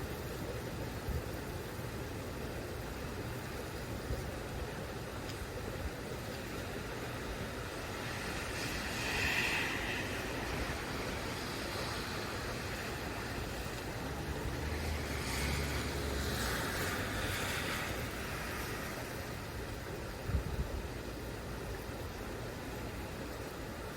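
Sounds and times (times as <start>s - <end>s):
rain: 0.0s - 23.9s
wind: 0.0s - 23.9s.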